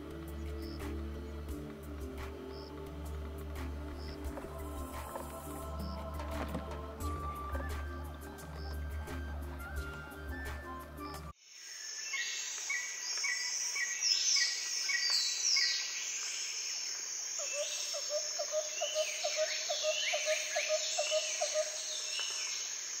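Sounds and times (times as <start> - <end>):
birds whistling calls: 0.0 - 11.4, 17.4 - 22.7.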